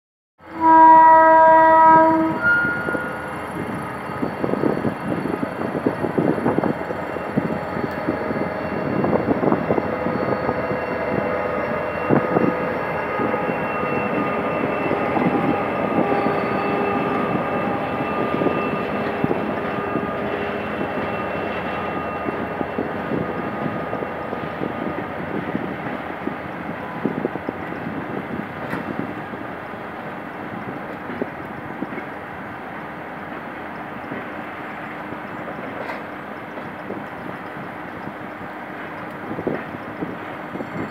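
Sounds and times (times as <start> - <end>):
diesel locomotive engine under load: 0.6 - 40.9
wheels clicking over rail joints: 35.3 - 40.9.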